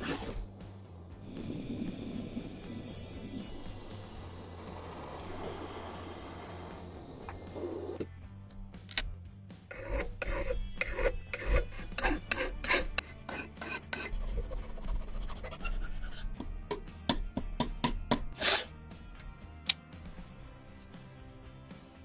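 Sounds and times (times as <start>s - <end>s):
hand rasp on rusty steel: 9.7s - 16.8s, 18.1s - 18.7s.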